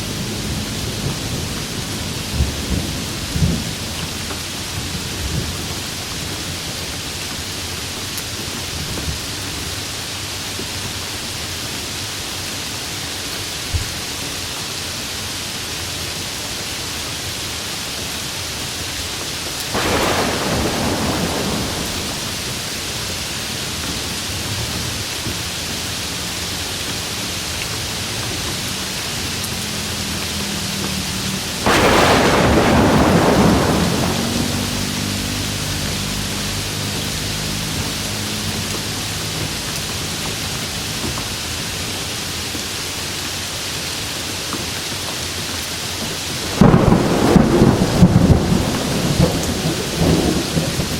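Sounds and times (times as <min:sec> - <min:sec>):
heavy rain falling: 0:00.0 - 0:50.9
thunder claps rumbling: 0:19.6 - 0:23.1, 0:31.5 - 0:36.0, 0:46.4 - 0:50.9.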